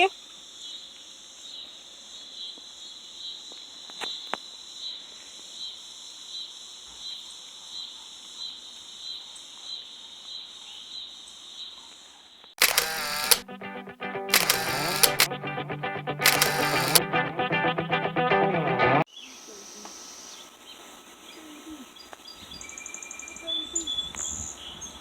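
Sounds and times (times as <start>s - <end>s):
loud music: 13.4s - 19.0s.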